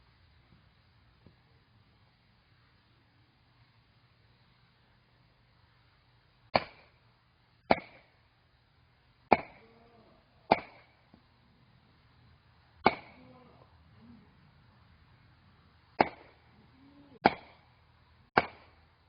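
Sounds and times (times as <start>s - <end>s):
axe chopping firewood: 6.5s - 6.9s, 7.7s - 8.0s, 9.3s - 9.6s, 10.5s - 10.9s, 12.8s - 13.2s, 16.0s - 16.4s, 17.2s - 17.6s, 18.4s - 18.8s.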